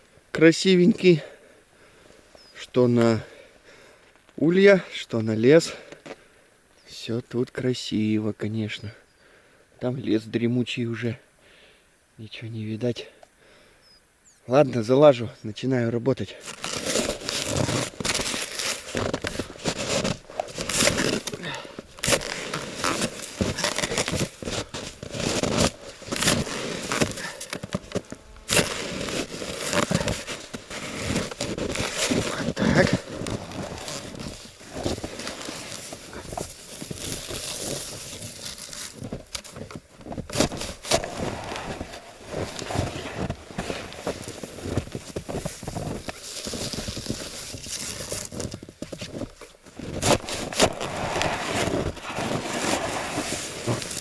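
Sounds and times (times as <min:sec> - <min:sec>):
snow crunching and knocking: 0:16.4 - 0:54.0
snow shovel scraping snow: 0:16.4 - 0:54.0.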